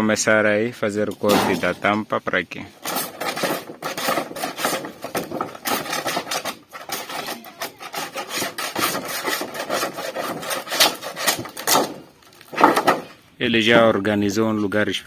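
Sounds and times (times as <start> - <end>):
hand tool scraping sheet metal: 1.1 - 2.0, 2.8 - 13.2.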